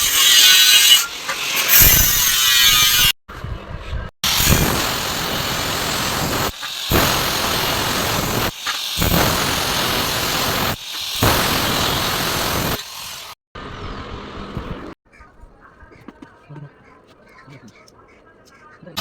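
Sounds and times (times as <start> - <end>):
rough metalworking on steel: 0.0 - 3.2.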